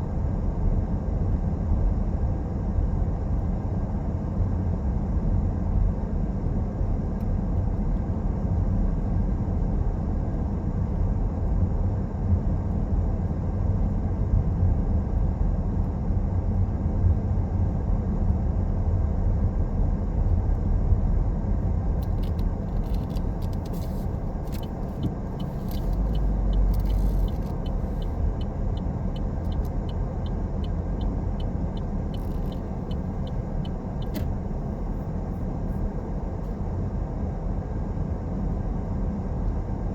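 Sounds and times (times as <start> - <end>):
car engine and tyre rumble: 0.0 - 39.9
light regular ticking: 22.0 - 34.8.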